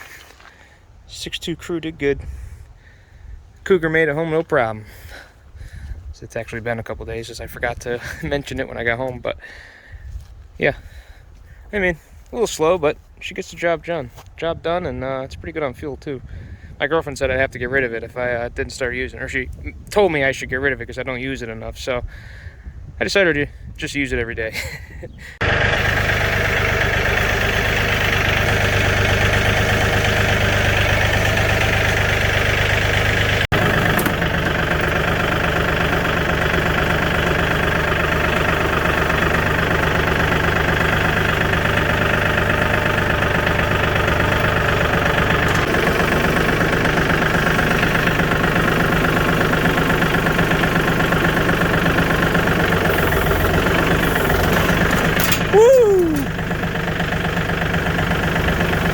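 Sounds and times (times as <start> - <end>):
diesel engine clattering: 0.0 - 20.7, 24.6 - 58.9.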